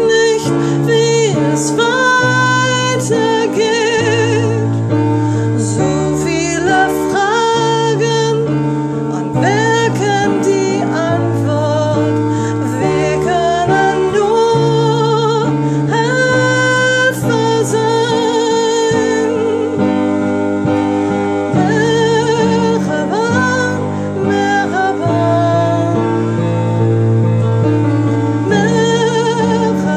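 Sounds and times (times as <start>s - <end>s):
woman singing with vibrato: 0.0s - 20.0s, 21.1s - 26.5s, 28.4s - 29.9s.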